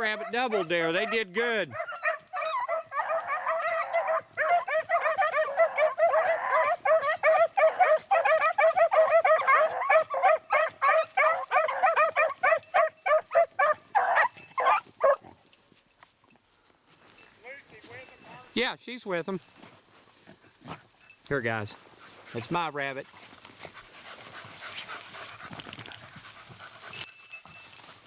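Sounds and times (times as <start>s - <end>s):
dogs yipping and baying: 0.0s - 15.5s.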